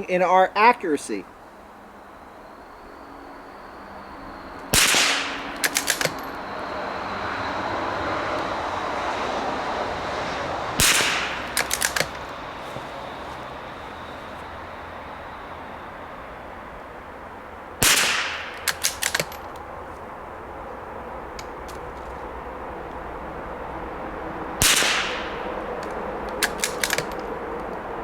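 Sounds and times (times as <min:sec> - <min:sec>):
rifle shots: 0:04.7 - 0:06.4, 0:10.8 - 0:12.4, 0:17.8 - 0:19.5, 0:24.6 - 0:27.2
rifle bolt clicks: 0:04.8 - 0:06.3, 0:10.8 - 0:12.3, 0:17.9 - 0:19.7, 0:24.6 - 0:27.7.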